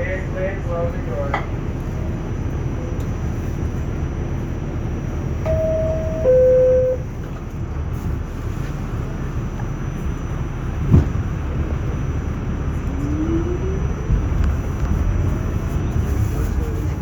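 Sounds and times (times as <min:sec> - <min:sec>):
train rumble: 0:00.0 - 0:17.0
two-tone door closing chime: 0:05.4 - 0:07.0.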